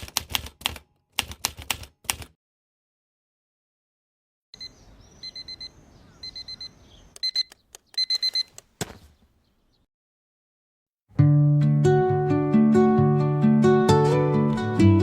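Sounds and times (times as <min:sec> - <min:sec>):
electronic alarm beeping: 0:04.6 - 0:08.5.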